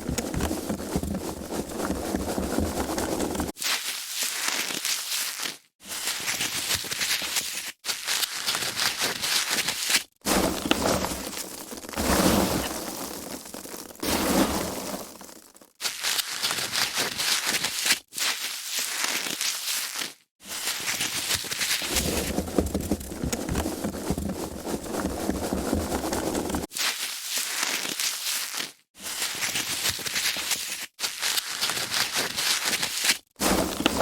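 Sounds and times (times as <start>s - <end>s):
foam packaging crinkling: 0.0s - 34.0s.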